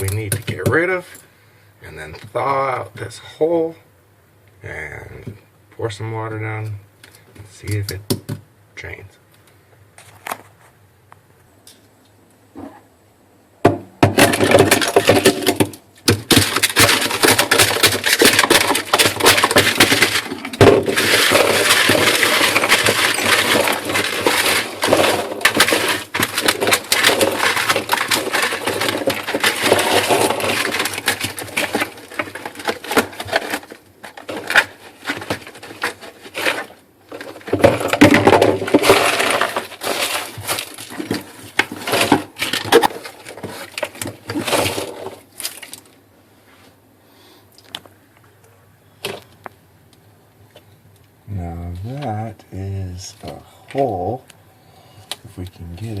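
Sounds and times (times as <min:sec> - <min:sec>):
ice chunks clattering: 0:00.0 - 0:00.8, 0:14.0 - 0:46.0
ice being chipped: 0:14.2 - 0:45.8.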